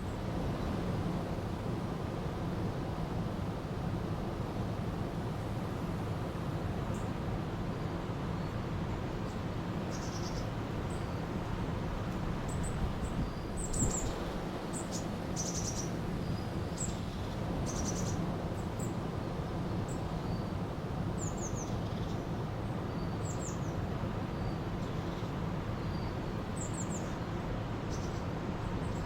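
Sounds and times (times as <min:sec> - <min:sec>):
small birds chirping: 0:09.3 - 0:11.3, 0:12.5 - 0:18.2, 0:24.4 - 0:29.0.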